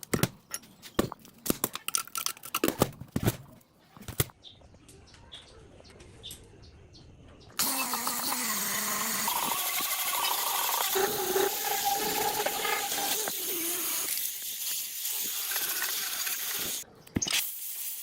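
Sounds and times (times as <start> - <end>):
compressed-air tool hissing: 7.6 - 18.0.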